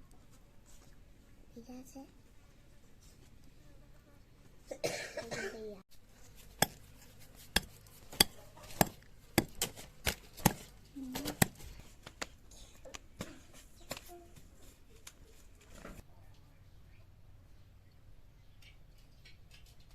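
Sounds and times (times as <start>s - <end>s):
knife chopping on cutting board: 6.5s - 11.6s.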